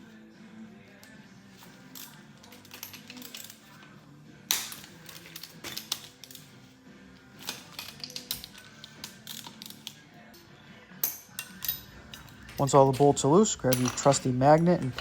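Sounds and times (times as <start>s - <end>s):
background music: 0.0s - 15.0s
small metal clinks: 7.4s - 15.0s.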